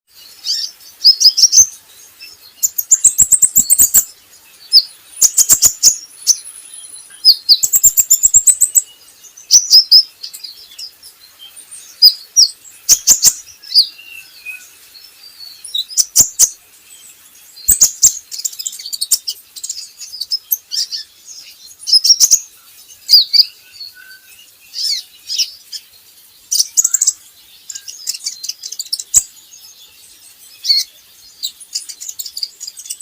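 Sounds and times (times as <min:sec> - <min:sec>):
sunbird chirping: 0:00.1 - 0:33.0.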